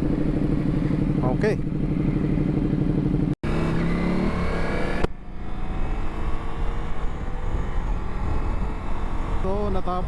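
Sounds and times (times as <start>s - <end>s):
motorcycle engine running: 0.0s - 10.0s
wind rumbling over microphone: 5.0s - 10.0s.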